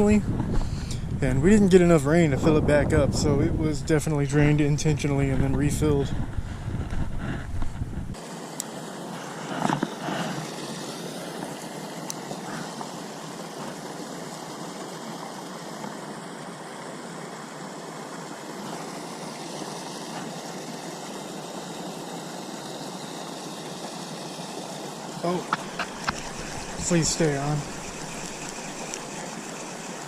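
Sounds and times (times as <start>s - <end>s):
steady rushing noise: 17.4s - 30.0s.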